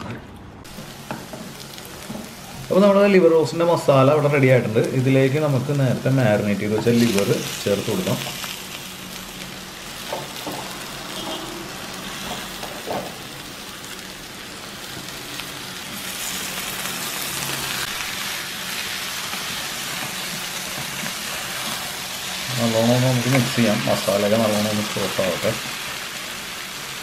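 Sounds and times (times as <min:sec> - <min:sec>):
masala sizzling in a frying pan: 0:00.7 - 0:27.0.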